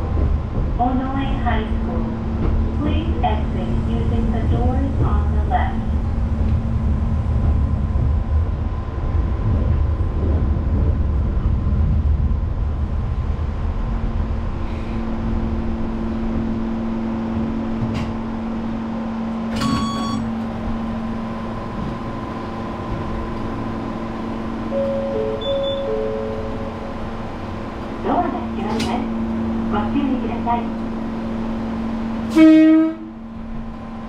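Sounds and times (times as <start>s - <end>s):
train wheels rumbling on rail: 0.0s - 34.0s
brief high-pitched tone: 24.8s - 26.7s.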